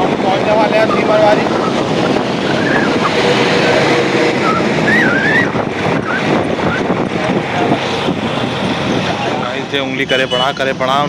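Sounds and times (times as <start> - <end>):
vehicle moving: 0.0 - 11.0
wind buffeting microphone: 0.0 - 11.0
wavering high tone: 0.8 - 3.5, 4.3 - 6.8.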